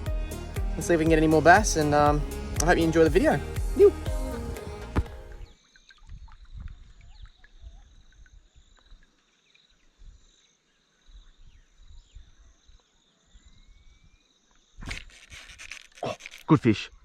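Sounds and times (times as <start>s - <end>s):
faint low thumps: 0.0s - 5.5s
insect trills: 5.5s - 16.9s.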